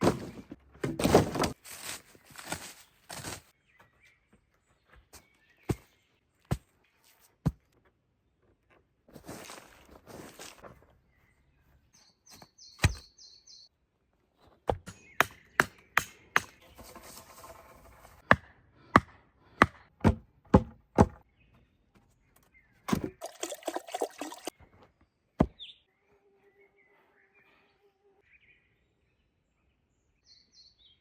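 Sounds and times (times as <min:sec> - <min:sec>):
bird chirping: 0:11.1 - 0:13.7, 0:25.5 - 0:31.0
tool striking wood: 0:18.3 - 0:21.2.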